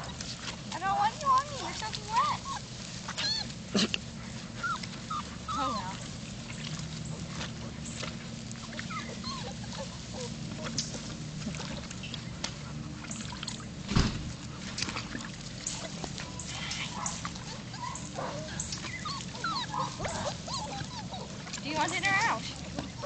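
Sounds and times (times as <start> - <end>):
puppies whimpering: 0.0 - 13.7, 15.5 - 23.0
water splashing: 4.8 - 23.0
loud thump: 13.9 - 14.4.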